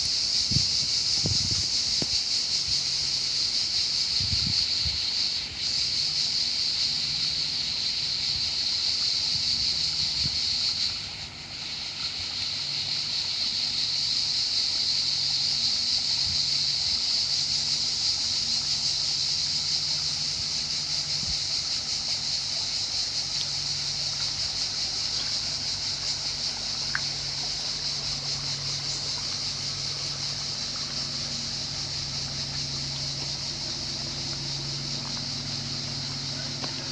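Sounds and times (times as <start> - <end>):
cicadas buzzing: 0.0 - 36.9
low hum: 25.4 - 36.9.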